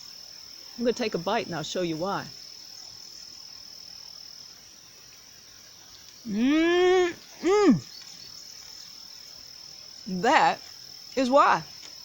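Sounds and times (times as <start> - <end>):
insect chirring: 0.0 - 12.0
woman humming mmm: 6.3 - 7.8.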